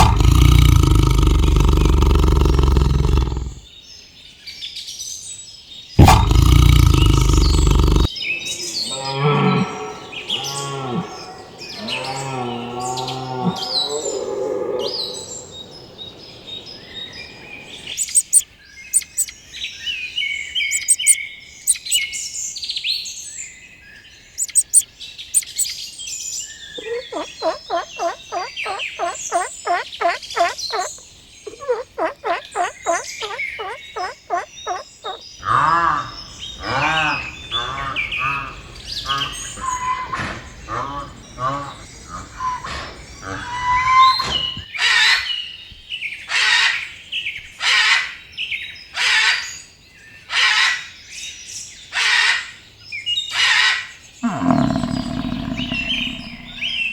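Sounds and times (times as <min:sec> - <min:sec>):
low drawn-out animal calls: 0:00.0 - 0:03.7, 0:06.0 - 0:18.4, 0:20.7 - 0:22.0, 0:24.4 - 0:24.8, 0:26.8 - 0:44.6, 0:54.2 - 0:56.9
fast repeated pitched calls: 0:06.0 - 0:19.3, 0:20.7 - 0:22.0, 0:24.4 - 0:24.8, 0:25.4 - 0:25.7, 0:26.8 - 0:44.4, 0:54.5 - 0:56.9
high bird chirps: 0:14.9 - 0:19.4, 0:20.6 - 0:22.1, 0:24.3 - 0:25.8, 0:26.7 - 0:44.6, 0:54.3 - 0:56.9.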